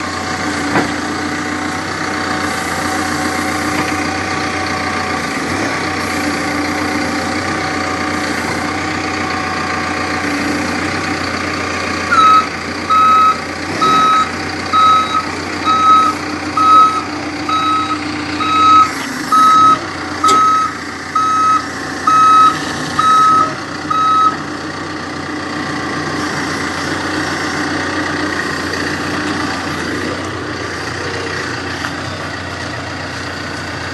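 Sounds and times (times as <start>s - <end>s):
diesel engine running: 0.0s - 33.9s
reversing alarm beeps: 12.1s - 24.4s.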